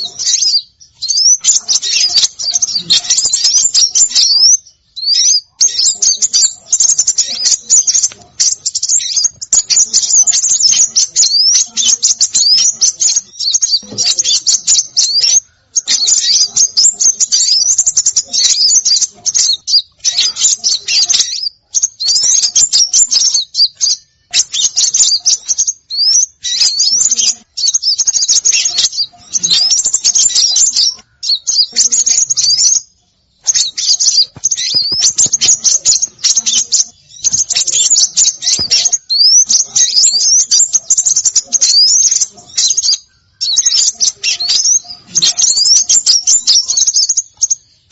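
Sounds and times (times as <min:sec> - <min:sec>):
small songbirds chirping and twittering: 0:00.0 - 0:47.9.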